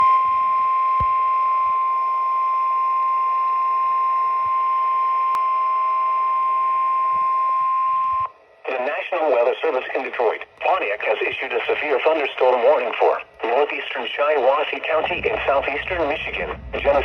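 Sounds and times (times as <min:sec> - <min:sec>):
radio static hiss: 0:08.6 - 0:17.0
steady alarm tone: 0:14.0 - 0:17.0.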